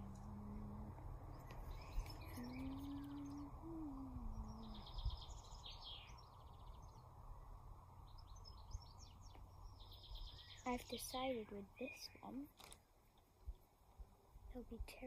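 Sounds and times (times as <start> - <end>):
low smooth tone: 0.0 - 9.6
faint background hiss: 0.0 - 15.0
small birds chirping: 0.0 - 15.0.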